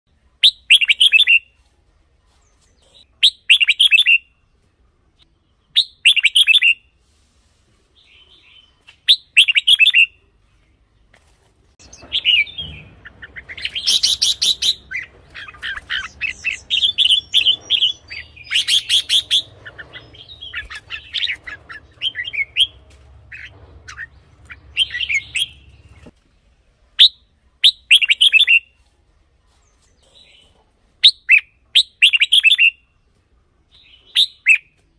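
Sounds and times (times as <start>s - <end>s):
bird singing warbling phrases: 0.4s - 1.5s, 2.5s - 4.4s, 5.4s - 6.8s, 8.0s - 10.2s, 11.8s - 26.1s, 27.0s - 28.7s, 29.8s - 33.0s, 33.7s - 34.8s
faint low hum: 10.1s - 27.6s.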